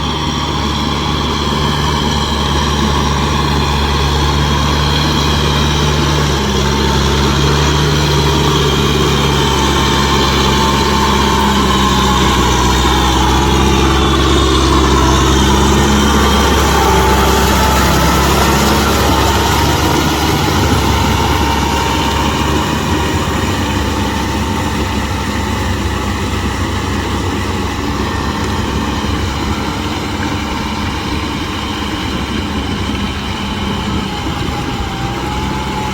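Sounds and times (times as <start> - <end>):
engine whine: 0.0 - 35.9
tractor diesel engine running: 0.0 - 35.9.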